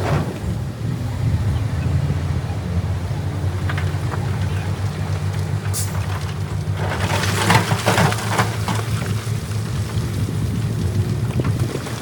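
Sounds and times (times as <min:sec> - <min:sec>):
diesel engine humming: 0:00.0 - 0:12.0
rock clattering and crunching: 0:03.2 - 0:12.0.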